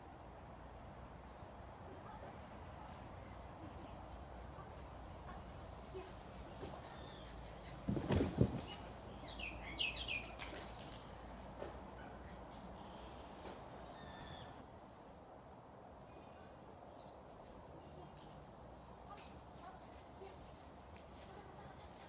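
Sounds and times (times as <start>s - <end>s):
faint high bird chirps: 8.6s - 10.5s, 12.9s - 15.2s, 16.0s - 17.2s.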